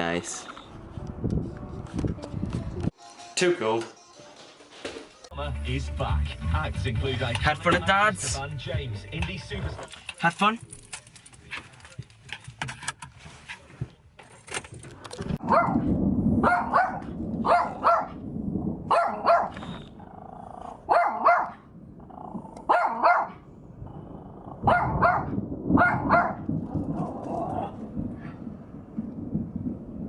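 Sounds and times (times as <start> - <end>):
low rumble: 15.2 - 30.0
dog barking: 15.4 - 15.8, 16.4 - 18.2, 18.9 - 19.6, 20.9 - 21.6, 22.7 - 23.4, 24.6 - 26.4.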